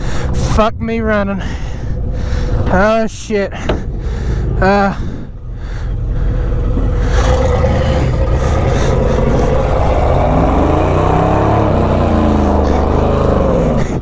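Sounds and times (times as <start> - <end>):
truck engine revving: 3.5 - 14.0.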